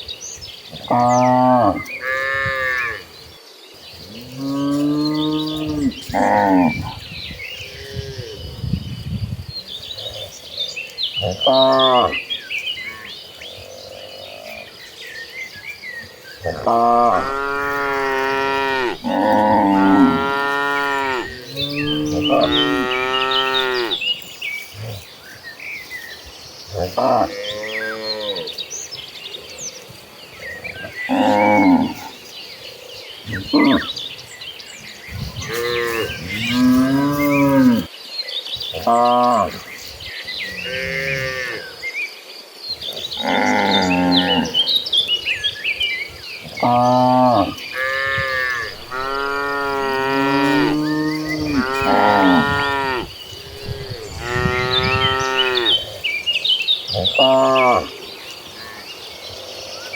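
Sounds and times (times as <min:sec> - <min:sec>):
cattle mooing: 0:16.5 - 0:24.0, 0:46.6 - 0:55.8.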